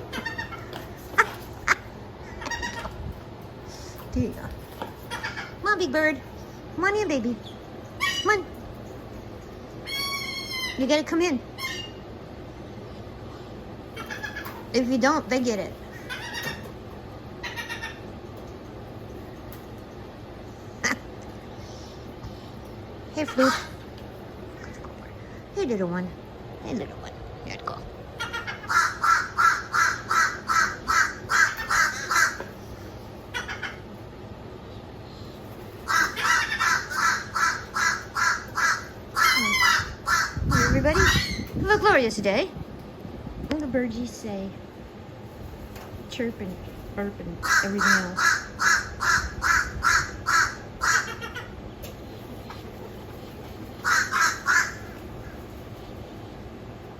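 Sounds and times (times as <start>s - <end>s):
bird calling: 28.2s - 33.9s, 35.8s - 41.6s, 53.8s - 55.5s
crow cawing: 53.8s - 54.9s.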